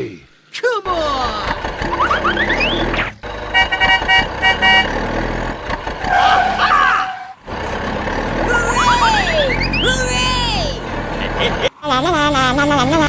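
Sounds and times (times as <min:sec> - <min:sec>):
vehicle horn beeping: 0:03.5 - 0:05.2.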